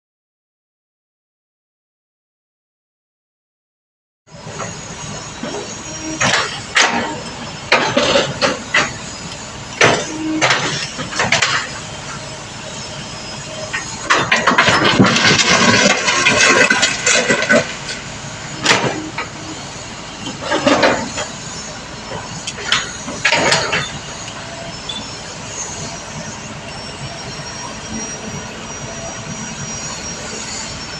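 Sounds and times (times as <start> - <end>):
continuous excavator clatter: 4.3 - 30.9
excavator metal clanks: 4.4 - 30.9.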